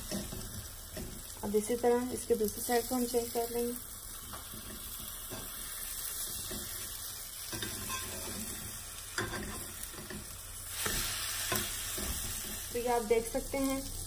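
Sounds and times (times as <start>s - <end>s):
omelet sizzling in oil: 0.0s - 14.0s
spatulas scraping and knocking pan: 7.5s - 12.7s.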